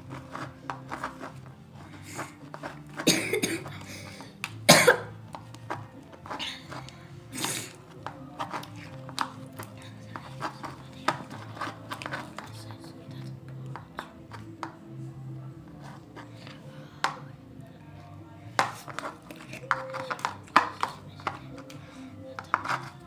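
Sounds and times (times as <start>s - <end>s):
faint background noise: 0.0s - 23.0s
person coughing: 3.0s - 5.1s, 7.4s - 7.8s.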